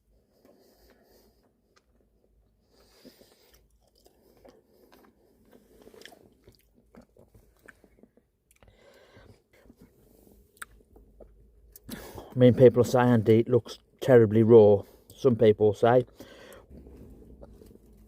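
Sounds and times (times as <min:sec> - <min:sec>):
person chewing food: 0:00.1 - 0:12.4, 0:16.1 - 0:18.0.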